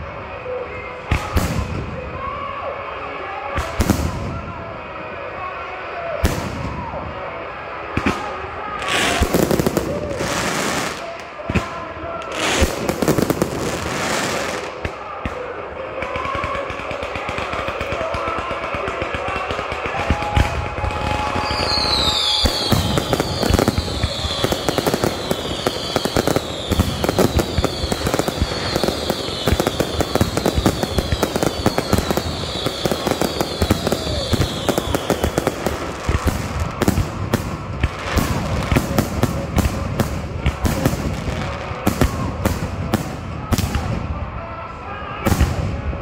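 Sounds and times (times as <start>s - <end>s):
fireworks crackling and popping: 7.9s - 44.2s
loud firework bangs: 16.2s - 44.0s
high falling firework whistles: 20.2s - 38.8s.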